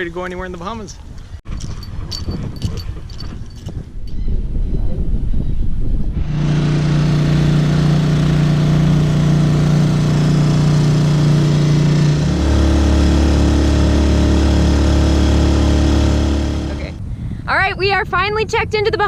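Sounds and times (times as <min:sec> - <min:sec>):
outboard motor running: 0:06.1 - 0:17.0.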